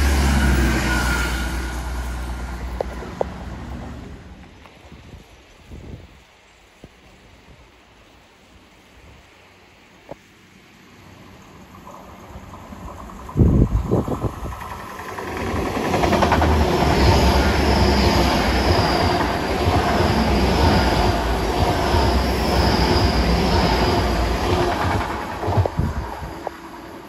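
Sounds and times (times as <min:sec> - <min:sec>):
train passing: 0:00.0 - 0:04.8, 0:10.4 - 0:27.0
faint high whine: 0:16.7 - 0:27.0.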